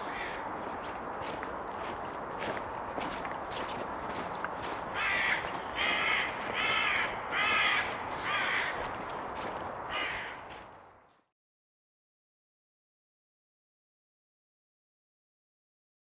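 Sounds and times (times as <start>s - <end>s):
bird harsh calls: 0.0s - 10.6s
footsteps on dirt track: 0.0s - 11.3s.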